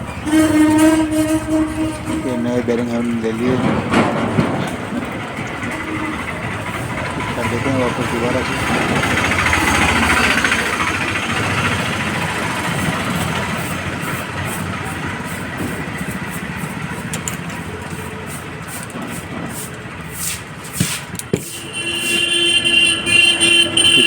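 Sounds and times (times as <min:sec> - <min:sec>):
engine and traffic noise: 0:00.0 - 0:24.0
sharp clicks and taps: 0:17.1 - 0:17.6.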